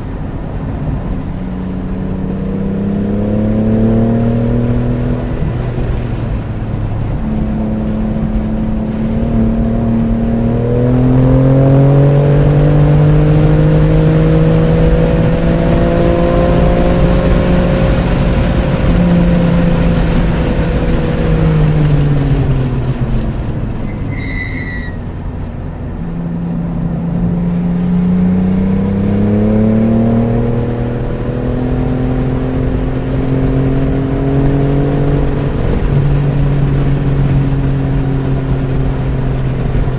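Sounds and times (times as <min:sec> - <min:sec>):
car engine accelerating hard: 0:00.0 - 0:39.9
brief high squeal: 0:23.9 - 0:25.1.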